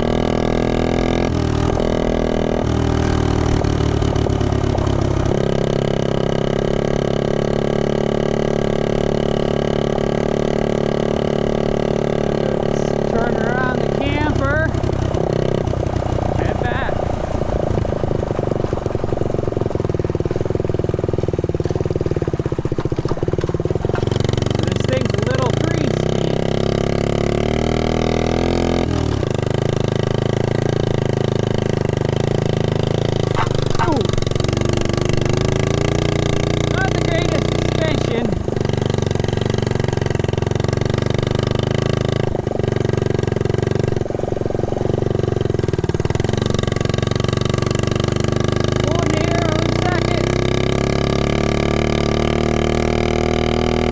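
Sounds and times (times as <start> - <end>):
small motorbike engine running: 0.0 - 53.9
small motorbike engine putting: 21.5 - 26.9, 31.6 - 51.8.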